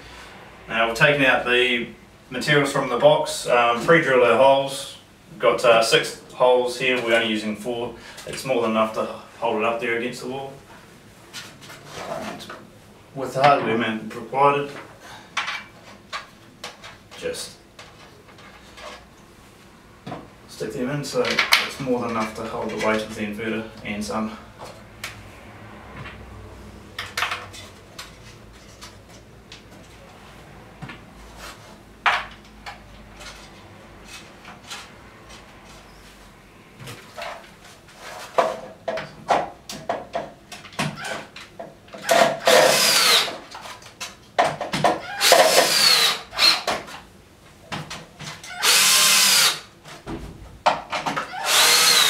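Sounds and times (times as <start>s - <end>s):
knocks and clicks of handling hardware: 14.7s - 17.2s, 32.0s - 35.8s, 38.2s - 42.8s, 43.5s - 45.7s, 47.7s - 48.5s, 49.9s - 51.3s
cordless drill whining: 42.4s - 43.4s, 45.1s - 46.7s, 48.4s - 49.7s, 51.3s - 52.0s.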